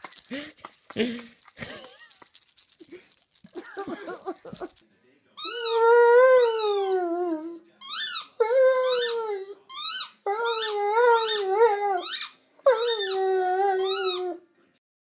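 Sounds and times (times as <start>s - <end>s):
dog howling: 5.4s - 7.6s, 8.4s - 9.6s, 10.2s - 14.4s
dog squeaky cries: 5.4s - 14.4s.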